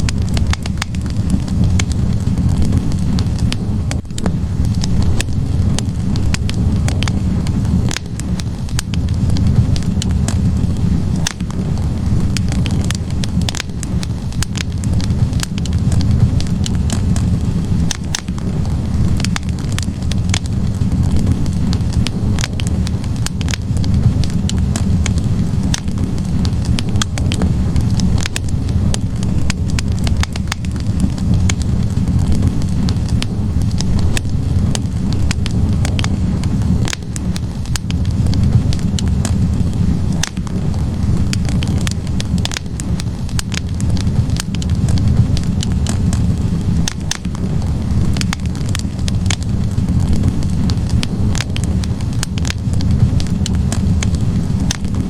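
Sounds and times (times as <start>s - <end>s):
fire crackling and popping: 0.0s - 55.0s
low rush of flame: 0.0s - 55.0s.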